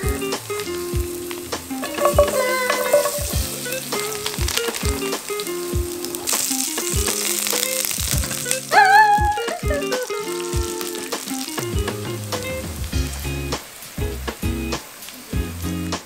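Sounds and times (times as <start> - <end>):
background music: 0.0 - 16.0
garlic sizzling in oil: 0.0 - 16.0
woman squealing: 8.7 - 11.2.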